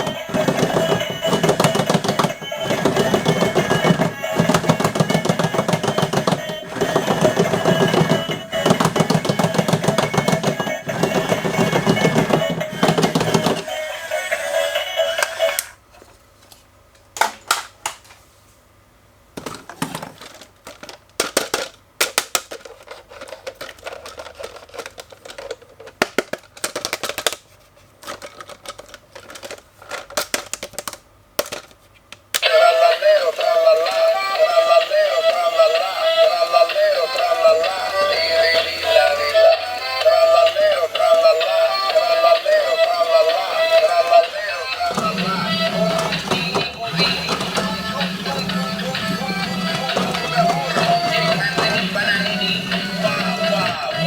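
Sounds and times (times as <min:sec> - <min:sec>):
plastic toy packaging clicks: 0:19.8 - 0:32.5.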